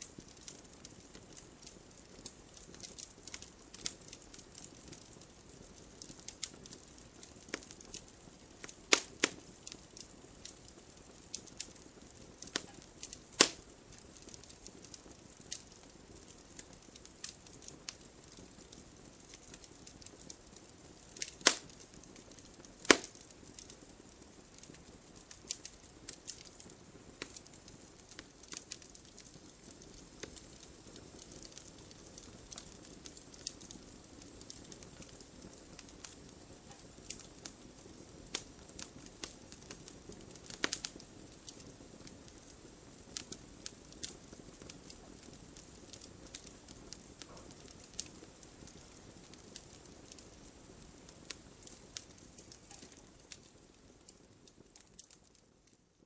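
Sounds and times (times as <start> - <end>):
faint hiss: 0.0 - 56.0
wood fire crackling: 0.0 - 56.0.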